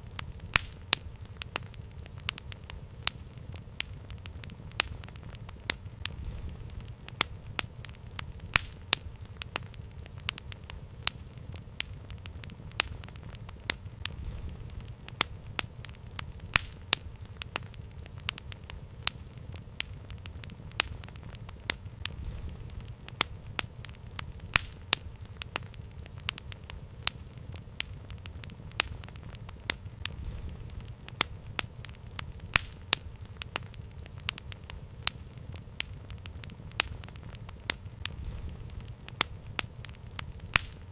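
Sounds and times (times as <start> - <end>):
campfire crackling and popping: 0.0 - 40.9
low rumble of flames: 0.0 - 40.9.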